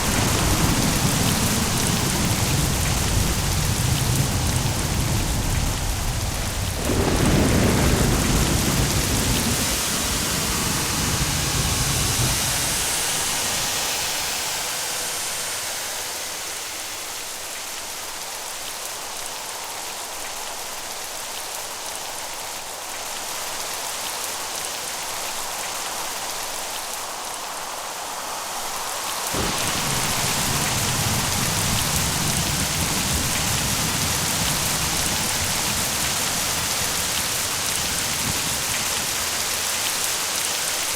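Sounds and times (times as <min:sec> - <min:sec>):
thunder rumbling: 0:00.0 - 0:13.9, 0:29.4 - 0:40.0
heavy rain: 0:00.0 - 0:40.9.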